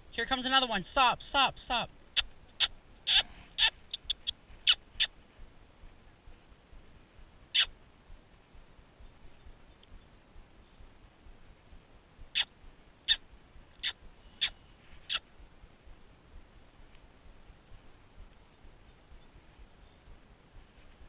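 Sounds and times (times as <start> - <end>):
small bird chirping: 2.2 - 5.2, 7.5 - 7.7, 9.0 - 11.0, 11.6 - 13.2, 13.8 - 15.8, 18.3 - 20.3.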